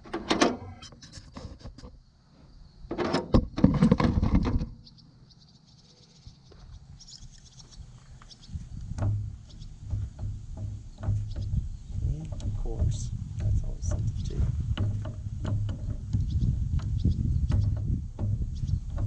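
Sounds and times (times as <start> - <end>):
tools clattering and scraping: 0.0 - 2.0, 2.9 - 4.6.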